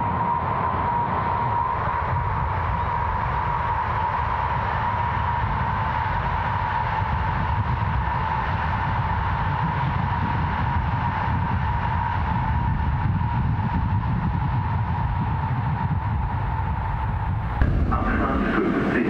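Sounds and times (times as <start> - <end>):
high whine of train: 0.0 - 19.0
high-speed train rushing past: 14.6 - 19.0.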